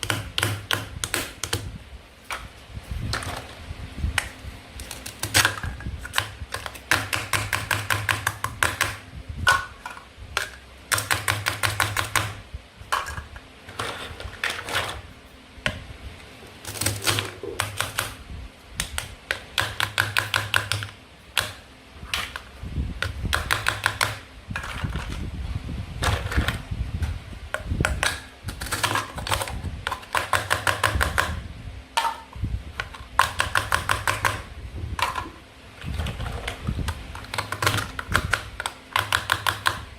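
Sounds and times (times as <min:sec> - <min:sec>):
toy knife chopping play food: 0:00.0 - 0:01.7, 0:04.8 - 0:12.4, 0:16.7 - 0:18.2, 0:18.8 - 0:21.6, 0:23.0 - 0:24.7, 0:27.8 - 0:31.4, 0:32.0 - 0:35.2, 0:37.2 - 0:39.9.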